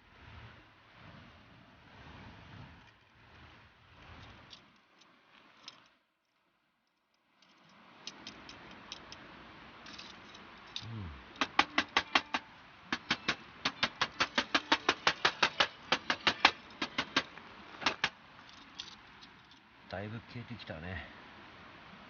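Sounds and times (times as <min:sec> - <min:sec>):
rapid sharp clicks: 0:11.4 - 0:18.2.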